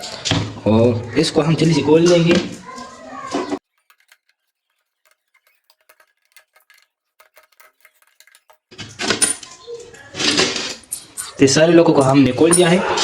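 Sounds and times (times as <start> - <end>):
metal housing clattering and scraping: 2.0 - 11.6
small metal clicks: 3.6 - 11.4.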